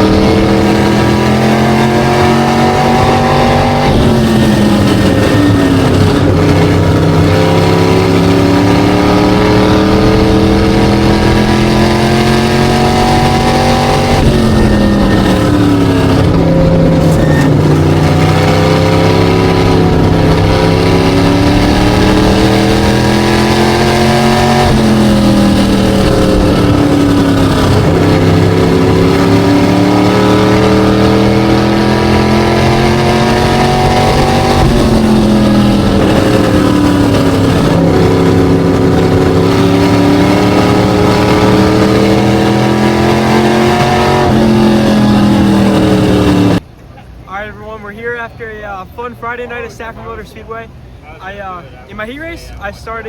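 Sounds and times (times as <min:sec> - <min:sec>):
race car engine at speed: 0:00.0 - 0:47.2.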